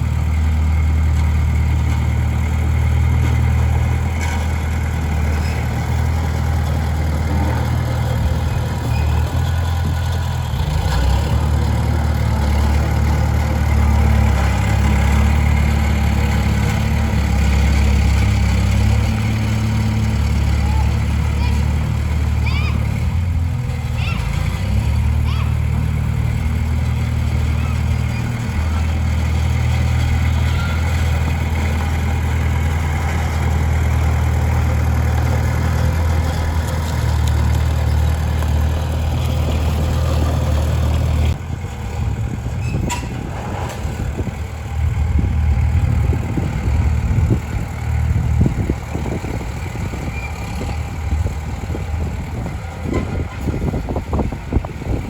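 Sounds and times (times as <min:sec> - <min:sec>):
heavy diesel engine running: 0:00.0 - 0:55.0
metal clanks and knocks: 0:42.5 - 0:44.4.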